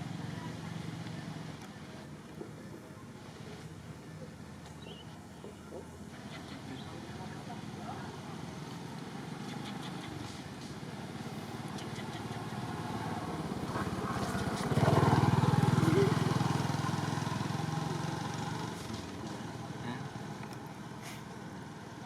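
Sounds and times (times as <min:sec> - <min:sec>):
vehicle engine passing by: 0:06.1 - 0:22.0.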